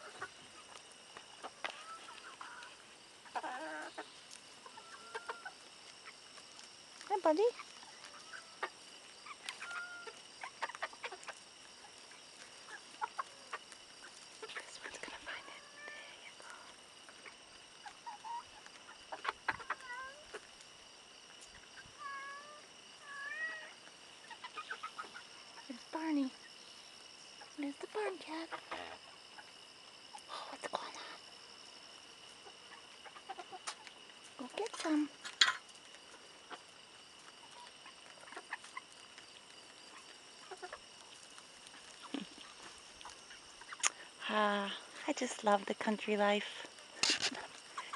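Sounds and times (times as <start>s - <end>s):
chickens clucking softly: 0.0s - 6.3s, 7.5s - 20.6s, 21.4s - 26.6s, 32.3s - 44.0s
chickens pecking at corn: 0.0s - 44.2s, 46.5s - 47.9s.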